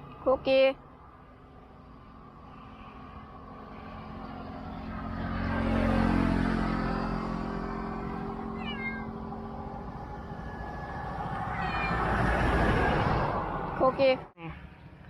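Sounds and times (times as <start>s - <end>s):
motor vehicle passing: 0.0s - 15.0s
cat meowing: 8.6s - 9.2s, 11.5s - 12.1s.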